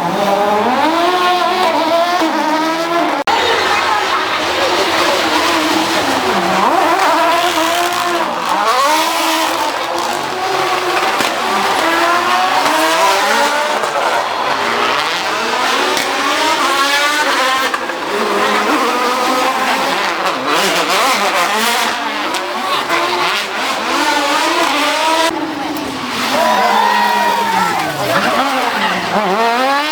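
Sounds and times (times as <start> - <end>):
rally car engines revving: 0.0 - 29.9.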